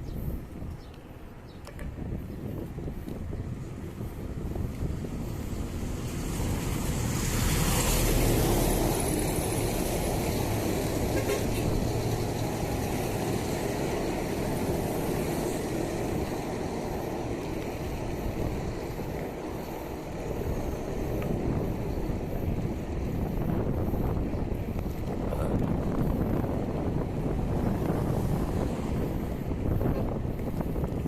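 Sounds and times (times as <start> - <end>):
road traffic noise: 0.0 - 31.0
wind: 0.0 - 31.0.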